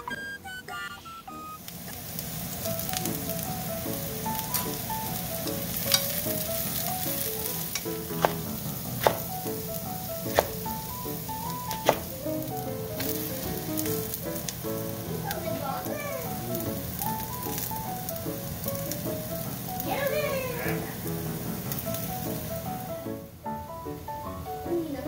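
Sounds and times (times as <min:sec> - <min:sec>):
vegetables sizzling in a frying pan: 0:01.6 - 0:25.0
knife knocking on cutting board: 0:08.2 - 0:08.4, 0:09.0 - 0:09.3.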